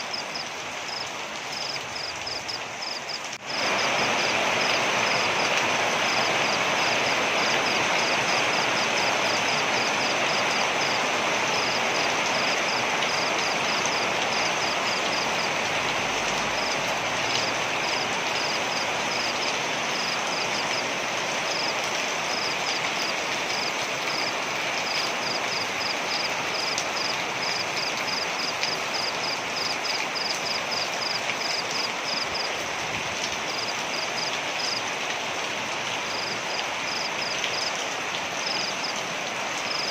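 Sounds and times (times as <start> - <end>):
waterfall roaring: 3.3 - 30.8.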